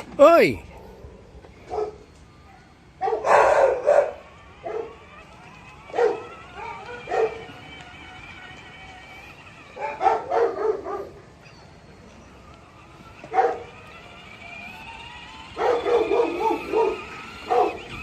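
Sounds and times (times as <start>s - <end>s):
animal barking: 3.0s - 5.0s, 5.9s - 7.6s, 9.7s - 11.2s, 13.3s - 13.8s, 15.6s - 18.0s.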